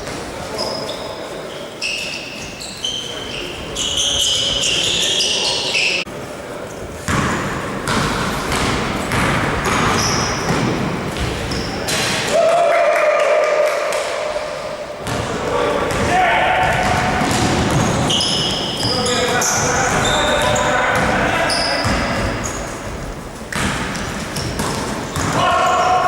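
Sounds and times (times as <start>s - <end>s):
sneakers squeaking on court: 0.0s - 6.0s, 6.7s - 12.0s, 16.7s - 25.8s
basketball bouncing: 7.1s - 12.1s, 15.0s - 18.8s, 19.9s - 25.8s
players calling out: 11.5s - 22.7s, 25.1s - 26.0s.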